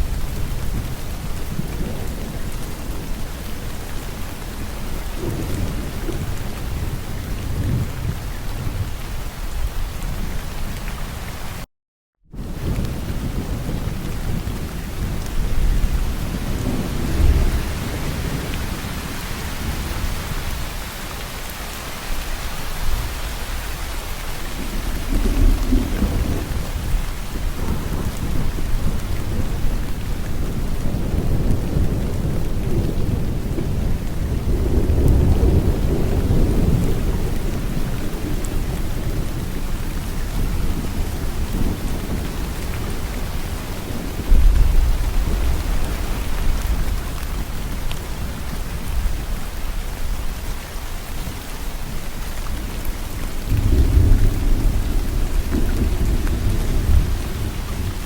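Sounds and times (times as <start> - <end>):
thunder rumbling: 0.0 - 10.3, 12.3 - 21.5, 22.1 - 58.0
heavy rain: 0.0 - 11.7, 12.3 - 58.0.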